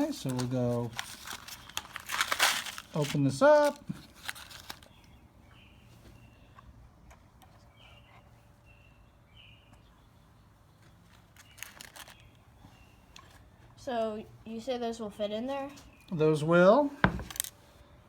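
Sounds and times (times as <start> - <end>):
bird chirping: 4.6 - 13.7, 15.5 - 17.3.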